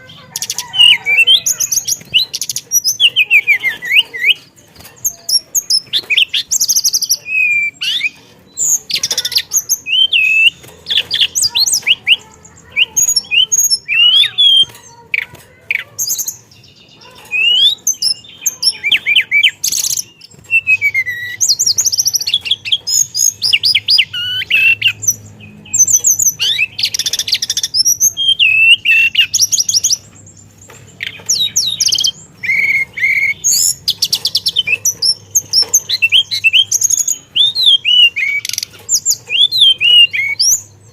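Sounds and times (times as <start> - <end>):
songbird singing whistles and trills: 0.0 - 14.7, 15.7 - 30.0, 31.0 - 40.9.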